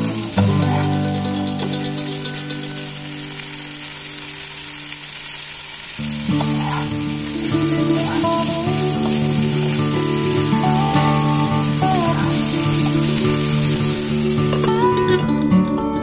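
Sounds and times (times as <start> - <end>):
background music: 0.0 - 4.8, 6.0 - 16.0
vegetables sizzling in oil: 0.0 - 15.3.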